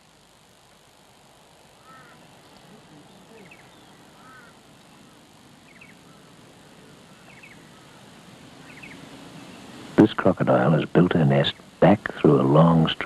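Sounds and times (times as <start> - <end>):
soft steady hiss: 0.0 - 13.0
bird chirping call: 1.8 - 9.8.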